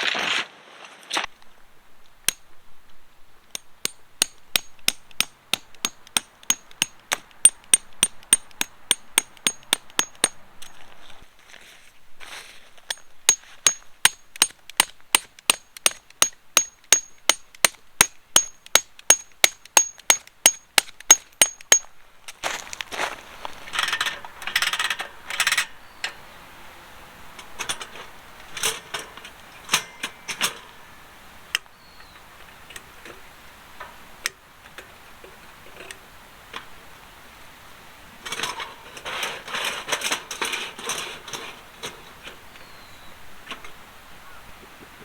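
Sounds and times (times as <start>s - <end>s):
hammer striking metal tent peg: 1.9s - 10.8s, 12.9s - 21.9s, 28.7s - 30.8s
scuffle: 10.7s - 13.6s, 22.1s - 24.4s.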